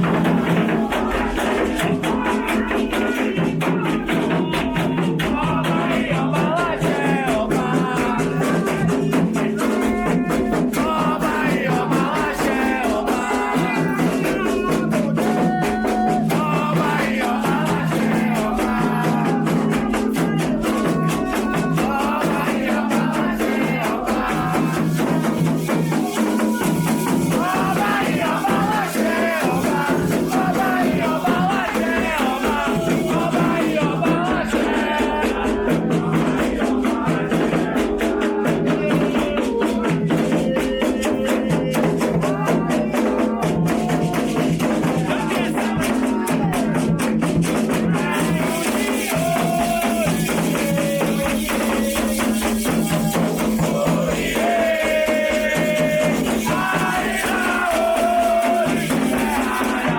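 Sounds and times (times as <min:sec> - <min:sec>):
drums beating: 0:00.0 - 0:59.9
voices chanting: 0:00.0 - 0:59.9
shaken rattles: 0:16.2 - 0:33.9.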